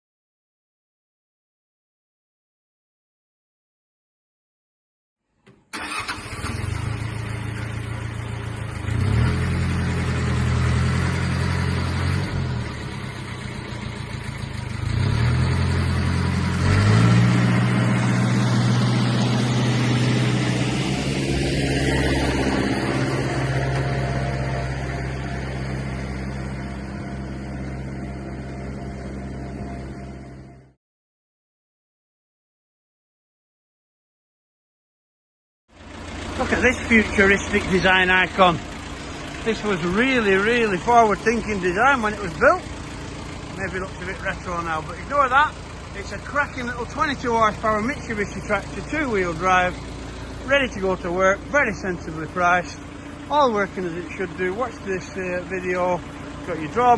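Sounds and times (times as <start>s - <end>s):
tractor diesel engine revving: 5.7s - 30.7s, 35.8s - 56.9s.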